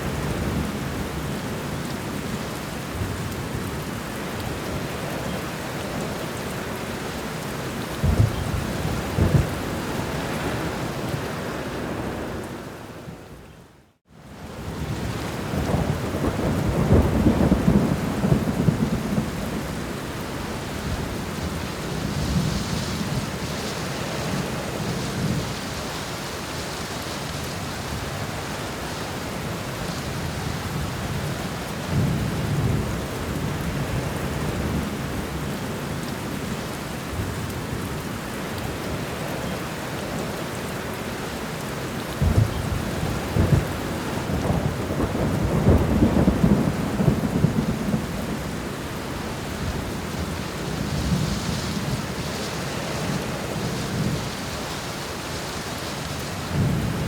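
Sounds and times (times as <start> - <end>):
steady rain: 0.0 - 57.0
rolling thunder: 8.0 - 10.8, 42.2 - 48.7.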